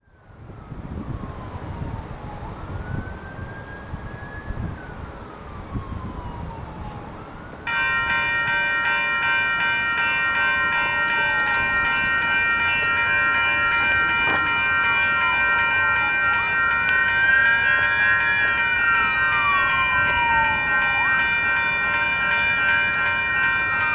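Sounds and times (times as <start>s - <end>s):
wailing warning siren: 0.1s - 23.9s
railroad crossing bells ringing: 7.6s - 23.9s.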